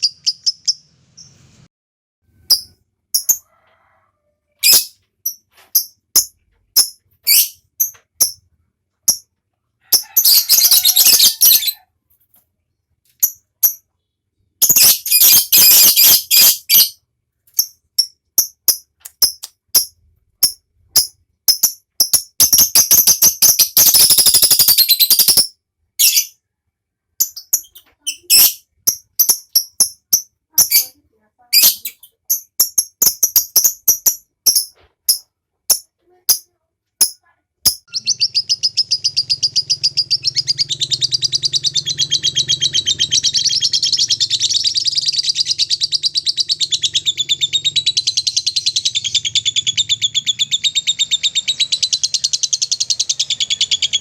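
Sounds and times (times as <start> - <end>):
sharp high bird chirps: 0.0 - 1.7, 2.4 - 3.4, 4.6 - 8.5, 10.0 - 11.8, 13.2 - 26.4, 27.2 - 31.0, 37.0 - 54.0
lovebird chattering trill: 9.9 - 11.8, 14.6 - 17.0, 17.6 - 26.3, 27.2 - 36.4, 37.0 - 54.0.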